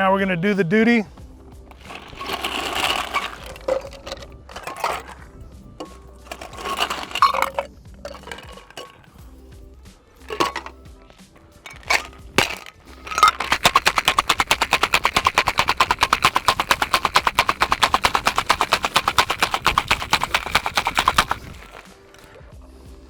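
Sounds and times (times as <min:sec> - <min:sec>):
shaker knocks: 0:01.7 - 0:05.2, 0:05.8 - 0:09.1, 0:10.3 - 0:10.8, 0:11.6 - 0:21.9
ice rattling in cocktail shaker: 0:01.7 - 0:09.2, 0:10.2 - 0:10.8, 0:11.4 - 0:22.4.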